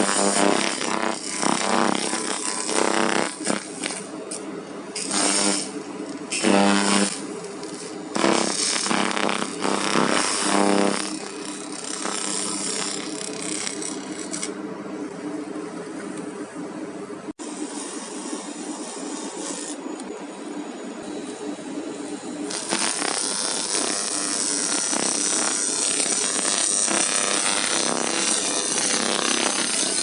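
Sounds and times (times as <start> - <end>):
high hissing crackle: 0.0 - 4.1, 5.0 - 14.4, 22.5 - 30.0.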